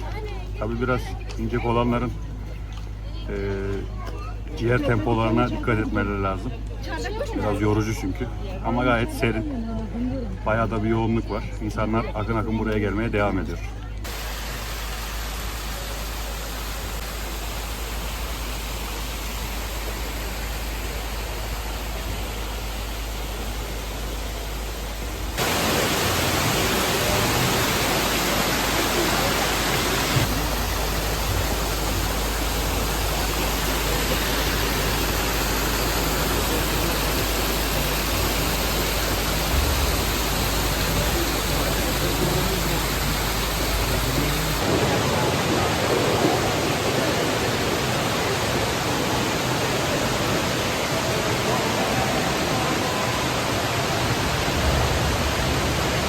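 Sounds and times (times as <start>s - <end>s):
steady rushing noise: 14.1s - 56.0s.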